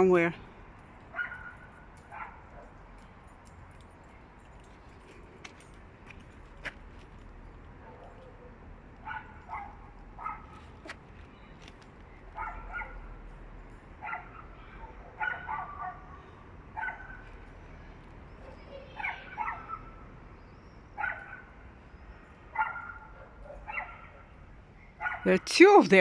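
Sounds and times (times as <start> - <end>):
dogs barking: 1.1 - 2.8, 7.8 - 10.9, 12.4 - 13.1, 14.0 - 17.3, 18.4 - 20.0, 21.0 - 21.5, 22.5 - 24.4, 25.0 - 25.3.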